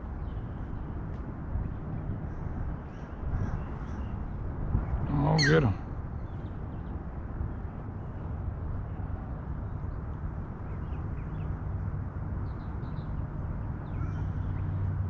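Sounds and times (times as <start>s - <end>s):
faint bird chirps: 5.1s - 5.8s, 13.8s - 14.9s.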